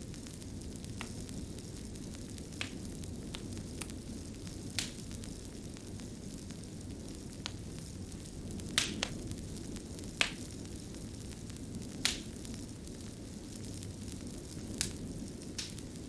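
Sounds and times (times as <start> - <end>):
fire burning: 0.0 - 16.0
fire crackling pops: 0.0 - 16.0.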